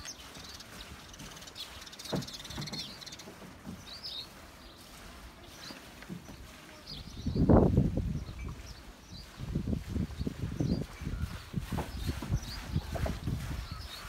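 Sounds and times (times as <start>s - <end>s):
high bird chirps: 0.0s - 14.0s
soft low thumps: 6.1s - 13.9s.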